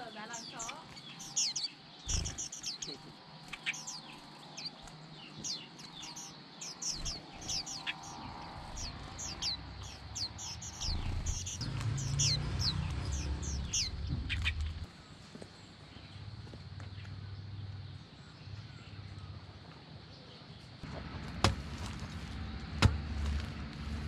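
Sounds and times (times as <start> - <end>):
birds chirping: 0.0 - 21.2
low rumble: 10.7 - 14.9.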